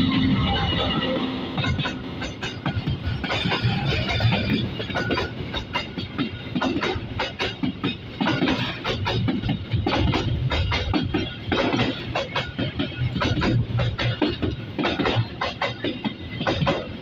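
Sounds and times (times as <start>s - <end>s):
train rumbling past: 0.0s - 17.0s
wheels clattering over rail joints: 0.0s - 17.0s.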